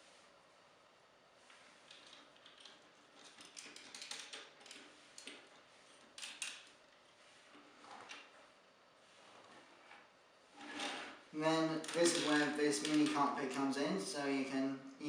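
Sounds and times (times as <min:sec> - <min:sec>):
plastic parts clicking and rustling: 0:01.9 - 0:06.7, 0:11.8 - 0:13.3.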